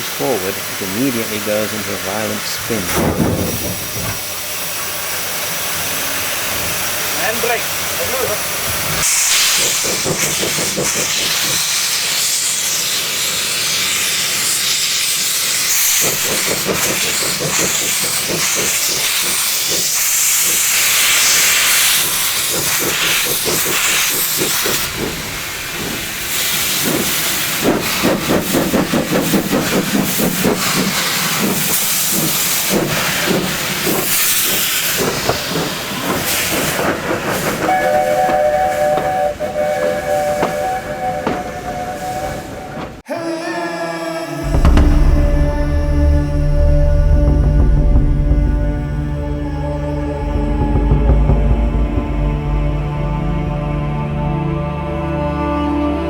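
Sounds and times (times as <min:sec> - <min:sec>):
steam hissing: 0:00.0 - 0:43.4
locomotive exhaust beats: 0:08.6 - 0:43.0, 0:44.4 - 0:54.4
steam whistle blowing: 0:37.4 - 0:51.8.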